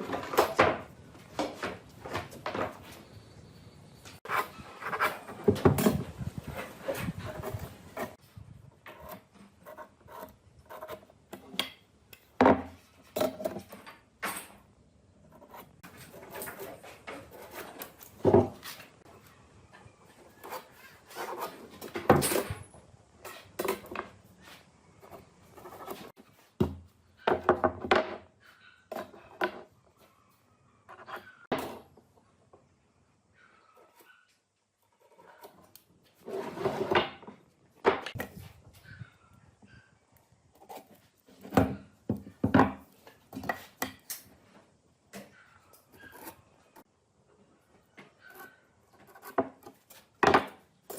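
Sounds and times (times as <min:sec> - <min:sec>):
wood knocking and scraping: 0:04.1 - 0:08.2, 0:15.3 - 0:19.0.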